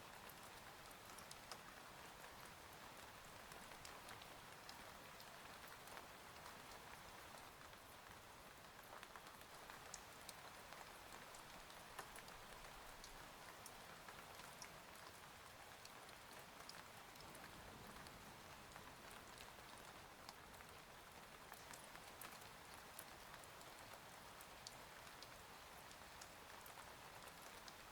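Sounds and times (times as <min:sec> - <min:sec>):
rain hissing on a window: 0:00.0 - 0:27.9
raindrops ticking: 0:01.0 - 0:01.7.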